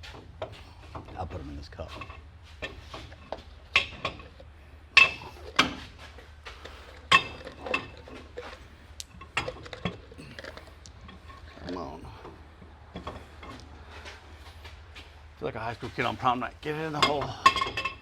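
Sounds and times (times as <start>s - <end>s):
metal tools clinking and clanking: 1.8s - 15.1s, 16.8s - 18.0s.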